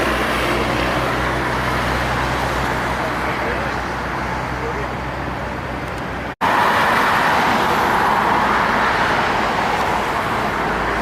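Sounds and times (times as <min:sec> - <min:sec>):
road traffic engine hum: 0:00.0 - 0:11.0
vehicle passing close by: 0:06.4 - 0:11.0.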